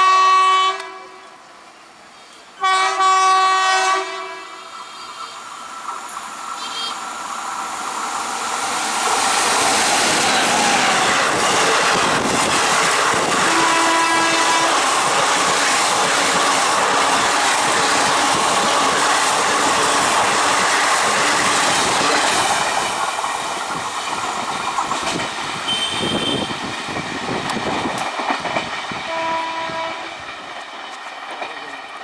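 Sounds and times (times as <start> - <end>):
train horn: 0.0 - 1.5, 2.6 - 5.4, 6.6 - 7.0, 13.1 - 20.4, 21.0 - 22.4, 25.7 - 26.7, 29.1 - 30.2
train wheels rushing on rails: 0.7 - 32.0
wheels clicking over rail joints: 5.8 - 32.0.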